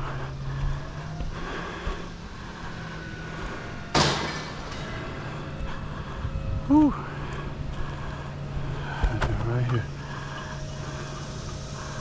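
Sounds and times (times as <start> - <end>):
garbage truck engine running: 0.0 - 12.0
sudden loud bang: 3.9 - 4.6.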